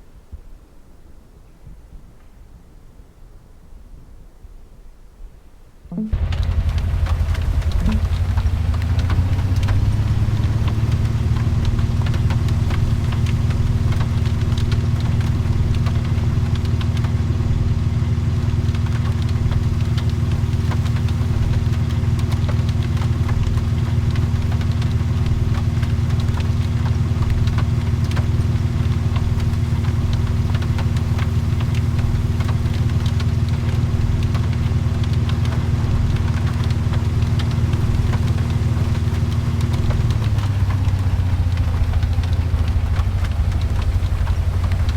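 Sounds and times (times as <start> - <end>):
car engine running: 5.9 - 44.9
faint ticks: 5.9 - 44.9.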